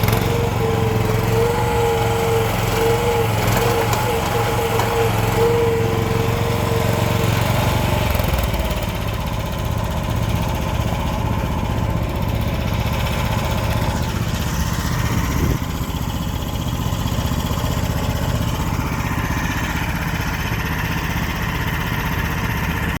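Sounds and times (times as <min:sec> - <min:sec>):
small excavator engine running: 0:00.0 - 0:23.0.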